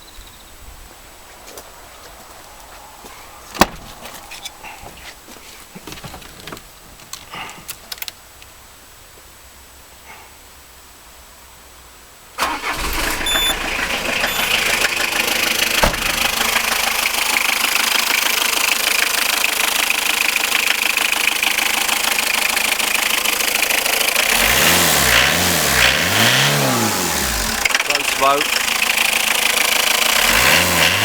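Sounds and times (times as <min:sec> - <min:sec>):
car engine starting and idling: 0:03.3 - 0:05.0, 0:12.4 - 0:31.0.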